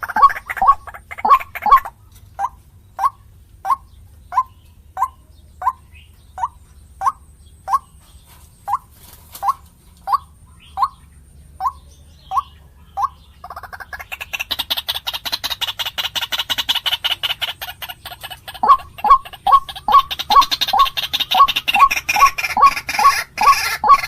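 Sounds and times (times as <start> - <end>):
waterhen calling short notes: 0.0 - 3.8, 18.5 - 24.0.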